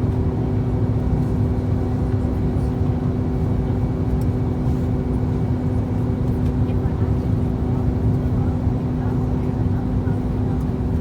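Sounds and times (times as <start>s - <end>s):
airflow rushing in aircraft cabin: 0.2s - 11.0s.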